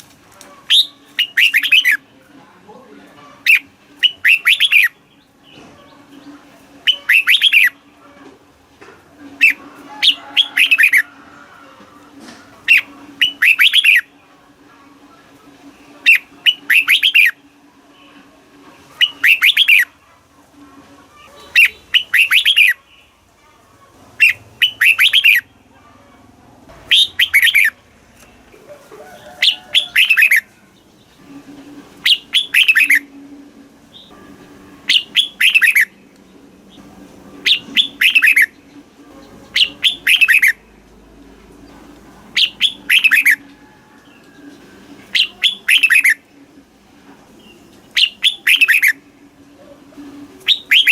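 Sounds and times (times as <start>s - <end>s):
bulbul singing: 0.6s - 2.1s, 3.4s - 8.0s, 9.3s - 11.0s, 12.6s - 14.3s, 15.8s - 18.1s, 18.9s - 20.0s, 21.4s - 23.2s, 24.2s - 25.7s, 26.8s - 28.4s, 29.4s - 33.3s, 33.9s - 46.6s, 47.3s - 49.4s, 50.2s - 50.9s.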